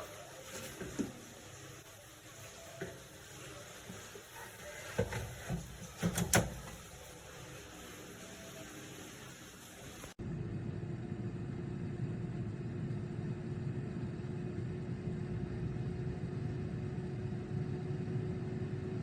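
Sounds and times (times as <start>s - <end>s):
machine low rumbling hum: 10.2s - 19.0s.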